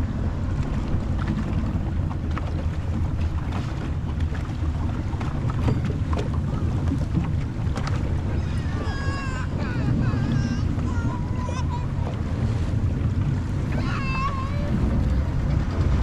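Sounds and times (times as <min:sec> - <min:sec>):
motorboat engine running: 0:00.0 - 0:16.0
wind buffeting microphone: 0:00.0 - 0:16.0.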